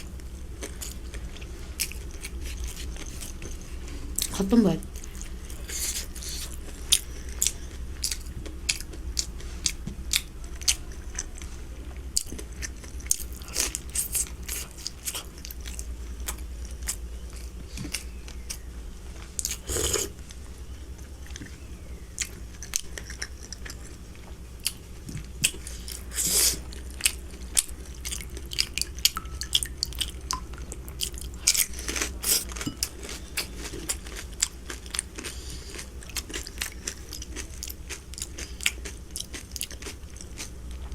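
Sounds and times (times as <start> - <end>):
biting and chewing: 21.2 - 40.9.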